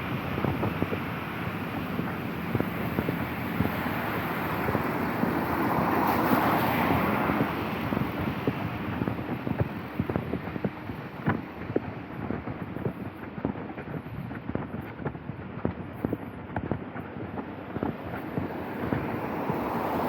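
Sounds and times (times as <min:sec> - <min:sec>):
tyres hissing on wet street: 0:00.0 - 0:10.0, 0:17.6 - 0:20.0.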